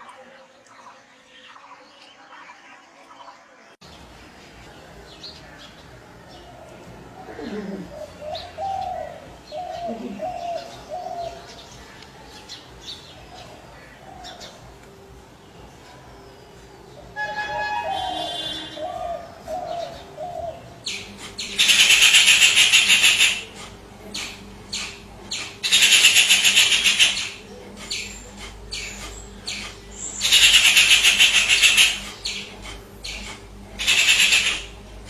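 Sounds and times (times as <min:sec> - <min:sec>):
harsh rasping bird calls: 0:17.2 - 0:35.0.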